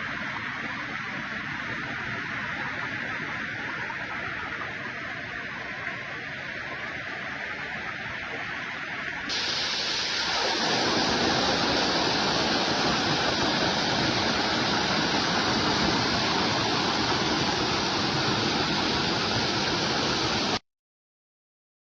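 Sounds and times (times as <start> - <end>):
waterfall rushing: 9.3 - 20.6.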